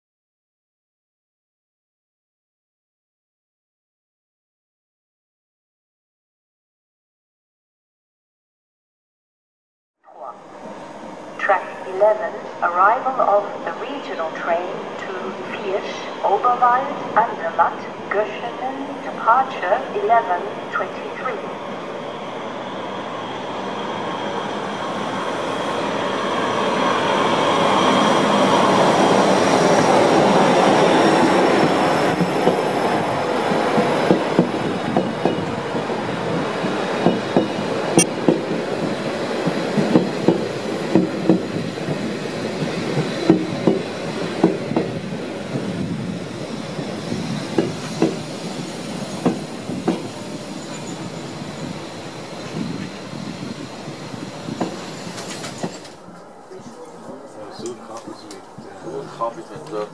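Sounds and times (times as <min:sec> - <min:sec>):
train whine and wheel squeal: 0:10.2 - 0:59.9.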